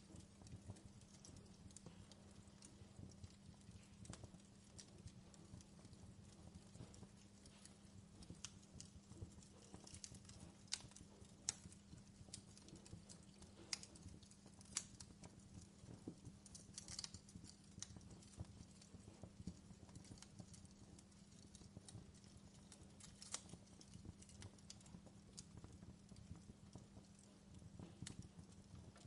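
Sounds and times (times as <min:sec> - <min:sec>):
faint steady hum: 0:00.0 - 0:29.0
wood fire crackling: 0:00.0 - 0:29.0.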